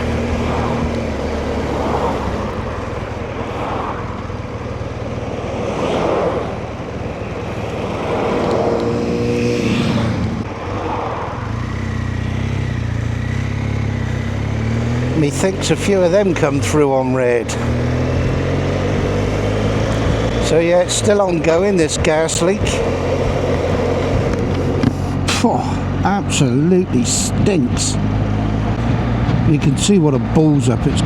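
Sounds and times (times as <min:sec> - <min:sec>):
wind rush on microphone: 0:00.0 - 0:11.6
motorcycle engine running: 0:00.0 - 0:31.0.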